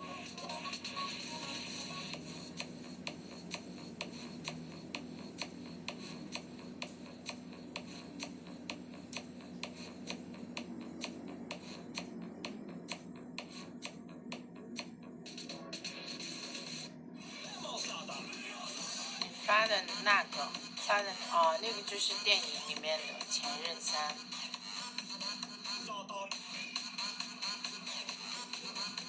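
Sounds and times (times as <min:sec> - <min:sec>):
steady ticking: 0:00.0 - 0:18.6
low steady hum: 0:00.0 - 0:25.5.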